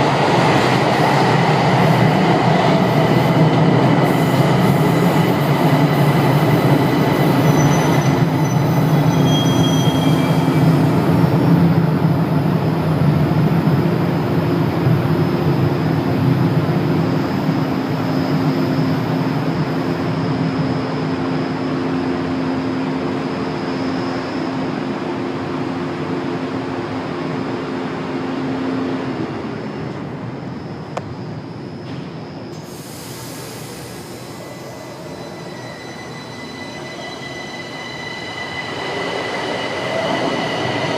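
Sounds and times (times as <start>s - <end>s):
train hum and rumble: 0.0s - 40.9s
high wheel squeals: 6.7s - 10.9s, 32.8s - 40.9s.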